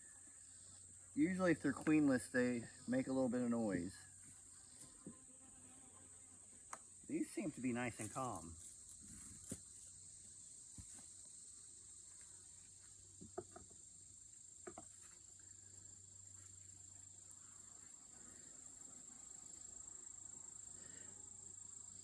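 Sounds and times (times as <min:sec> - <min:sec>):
honeybee colony humming: 0:00.0 - 0:08.6
high-pitched insect trill: 0:00.0 - 0:22.0.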